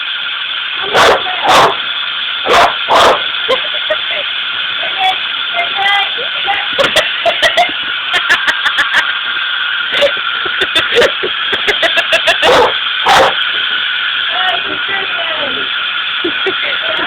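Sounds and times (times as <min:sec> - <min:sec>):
vacuum cleaner humming: 0:00.0 - 0:17.0
dog barking: 0:00.9 - 0:01.8, 0:02.4 - 0:03.3, 0:12.4 - 0:13.4.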